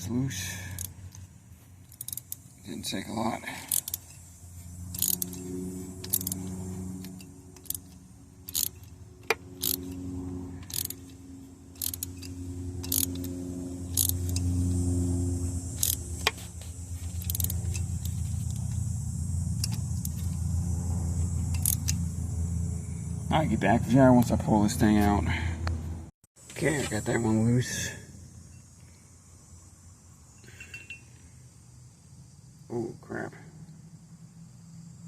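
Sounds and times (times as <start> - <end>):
vehicle engine hum: 0.0 - 35.0
socket wrench clicking: 0.8 - 1.2, 1.9 - 2.5, 3.7 - 4.2, 4.9 - 5.4, 6.0 - 6.4, 7.0 - 10.0, 10.6 - 13.3, 13.9 - 14.5, 15.8 - 16.4, 17.1 - 18.7, 19.6 - 20.4, 21.5 - 22.0.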